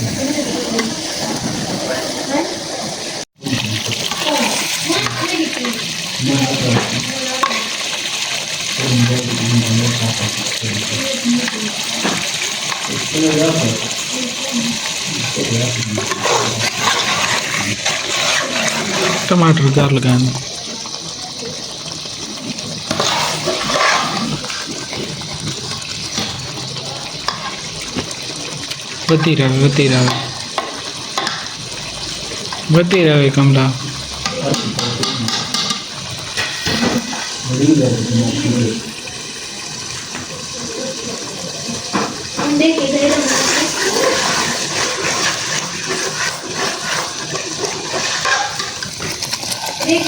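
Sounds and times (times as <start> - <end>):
people talking: 0.0 - 7.8, 8.7 - 25.1, 26.2 - 30.4, 32.6 - 35.7, 36.7 - 45.0
running water: 0.0 - 50.0.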